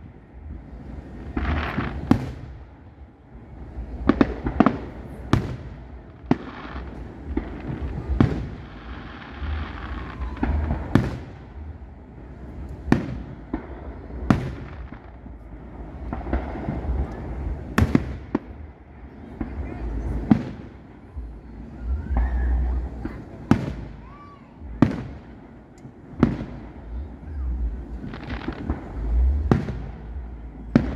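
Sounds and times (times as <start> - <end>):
fireworks bangs: 0.0 - 30.9
low rumble of fireworks: 0.0 - 30.9.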